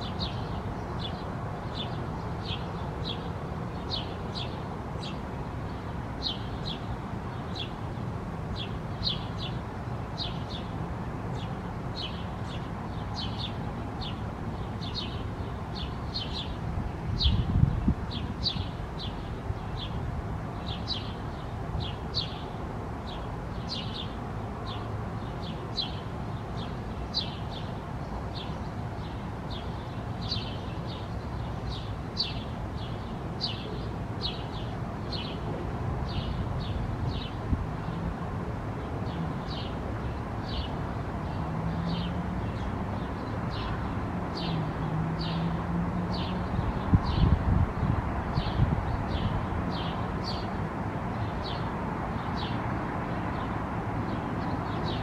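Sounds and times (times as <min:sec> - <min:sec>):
bird chirping: 0:23.1 - 0:35.4.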